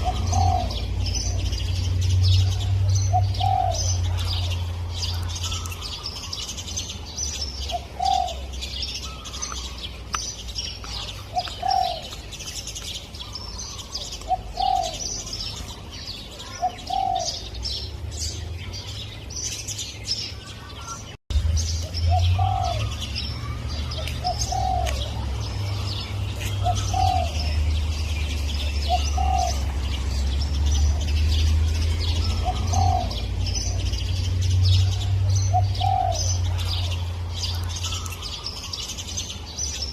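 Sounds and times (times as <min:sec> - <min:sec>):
dove cooing: 0:00.0 - 0:06.4, 0:07.6 - 0:09.8, 0:10.9 - 0:12.2, 0:13.2 - 0:17.8, 0:22.1 - 0:27.9, 0:28.6 - 0:30.2, 0:30.8 - 0:34.1, 0:34.8 - 0:38.5
small birds chirping: 0:00.0 - 0:39.9.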